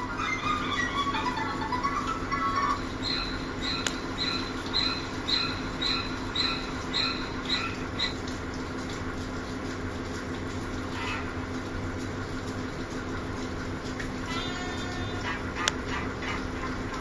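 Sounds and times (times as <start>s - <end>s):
steady low hum: 0.0s - 17.0s
small bird chirping: 0.2s - 8.2s.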